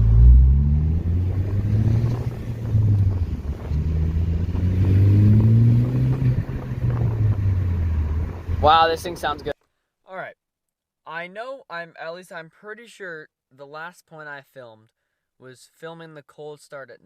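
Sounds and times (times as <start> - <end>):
car exhaust accelerating: 0.0 - 9.5.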